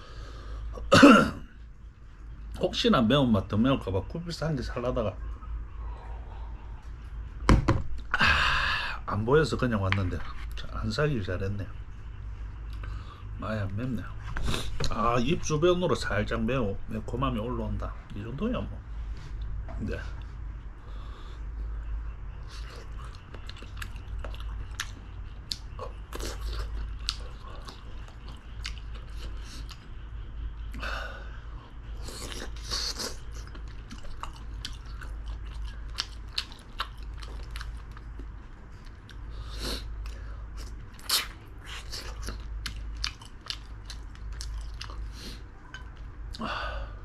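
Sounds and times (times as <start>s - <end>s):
person chewing food: 22.4s - 30.8s, 31.9s - 46.4s.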